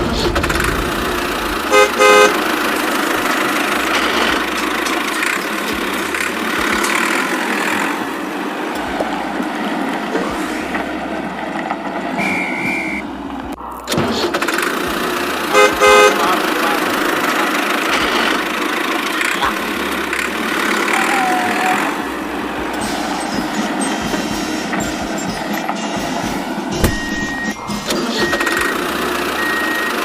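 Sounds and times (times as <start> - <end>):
motor running: 0.0 - 9.4, 14.2 - 30.0
horn toot: 1.6 - 5.1, 12.2 - 13.2, 15.4 - 18.5
high beep: 26.8 - 30.0.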